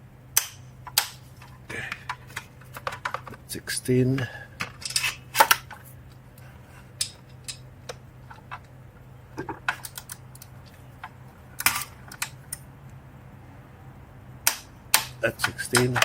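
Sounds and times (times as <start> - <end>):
faint low hum: 0.0 - 16.0
wrench clicking on metal bolts: 14.5 - 16.0.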